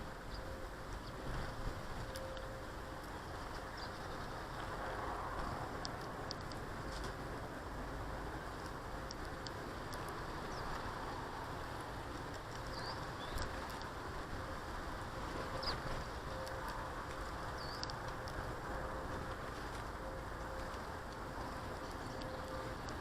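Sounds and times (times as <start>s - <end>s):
steady background hiss: 0.0s - 23.0s
small birds chirping: 3.5s - 4.7s, 9.1s - 11.2s, 12.5s - 13.9s, 15.5s - 16.6s, 17.2s - 18.4s, 21.5s - 23.0s.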